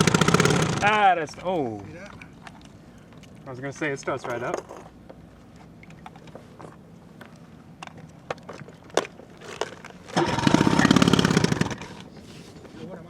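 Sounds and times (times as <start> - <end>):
outboard motor running: 0.0 - 1.0, 10.2 - 12.0.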